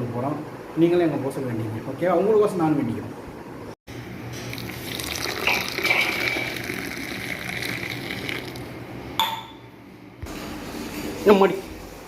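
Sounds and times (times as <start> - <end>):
water gushing from a tap: 4.6 - 8.7.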